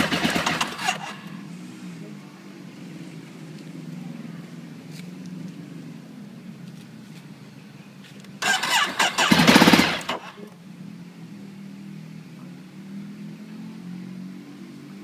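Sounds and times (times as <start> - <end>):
motorcycle starter cranking: 0.0 - 1.1, 8.4 - 10.3.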